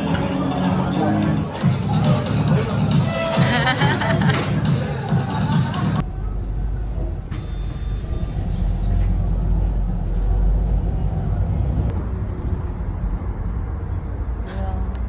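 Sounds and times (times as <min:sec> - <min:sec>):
low outdoor rumble: 0:05.8 - 0:15.0.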